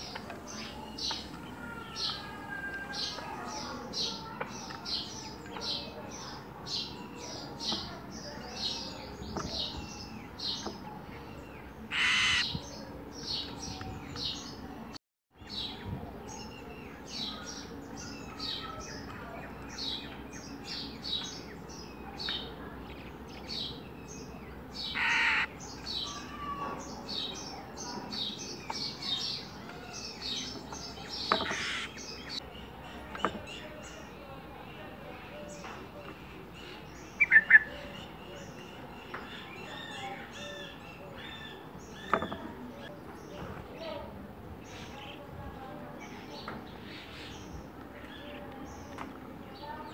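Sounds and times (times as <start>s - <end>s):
longer bird calls: 0.0s - 43.4s
small birds chirping: 0.0s - 49.9s.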